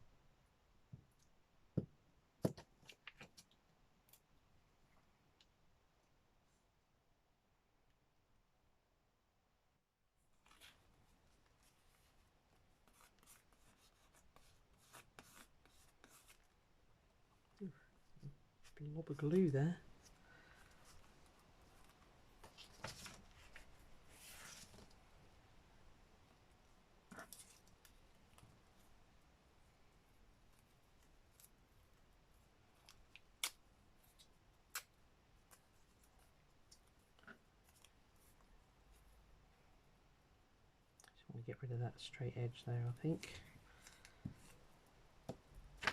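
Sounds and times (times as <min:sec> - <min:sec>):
paper rustling and rubbing: 0:10.4 - 0:16.5, 0:19.9 - 0:25.0.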